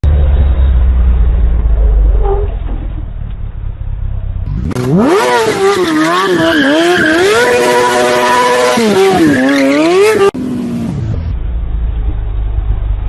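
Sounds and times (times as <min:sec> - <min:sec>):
low rumble: 0:00.0 - 0:04.7, 0:10.8 - 0:13.0
vehicle high whine: 0:00.0 - 0:13.0.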